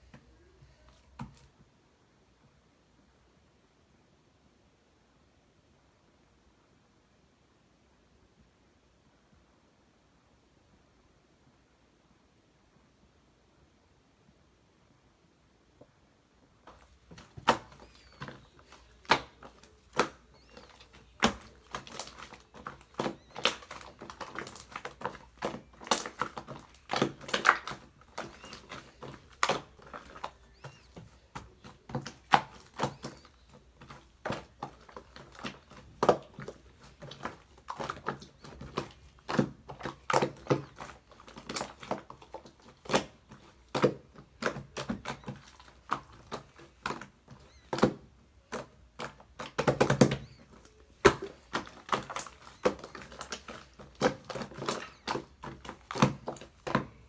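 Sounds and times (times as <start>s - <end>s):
slime squeezed by hand: 16.7s - 57.0s.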